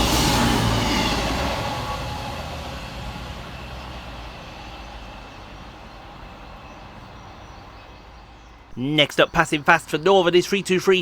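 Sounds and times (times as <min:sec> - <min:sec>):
diesel train rumble: 0:00.0 - 0:08.3.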